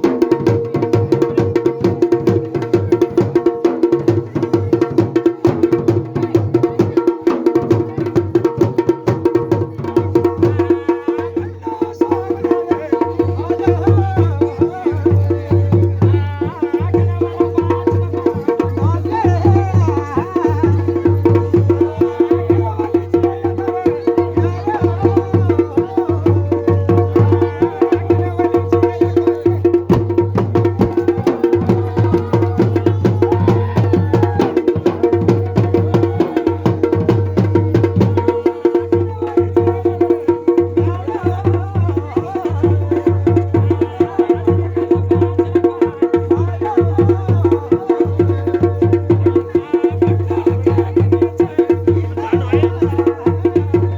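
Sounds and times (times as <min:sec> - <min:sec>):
drums playing fast rhythm: 0:00.0 - 0:53.9.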